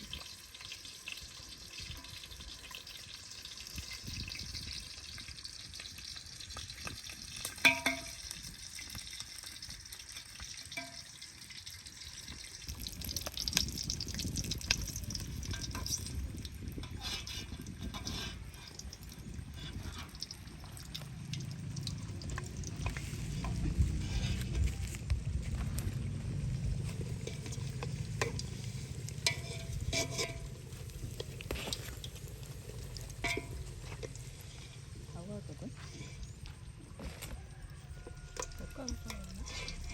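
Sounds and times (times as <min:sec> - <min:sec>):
food sizzling in hot oil: 0:00.0 - 0:39.9
utensil scraping metal pot: 0:00.1 - 0:36.5, 0:37.8 - 0:39.9
low rumble: 0:19.0 - 0:37.0, 0:38.6 - 0:39.9.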